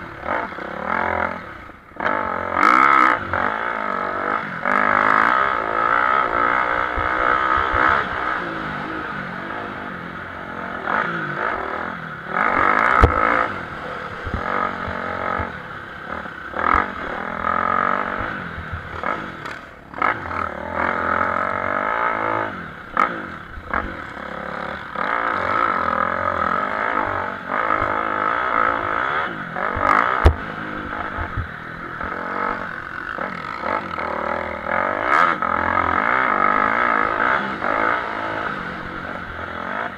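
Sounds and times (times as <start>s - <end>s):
motocross engines revving: 0.0s - 39.9s.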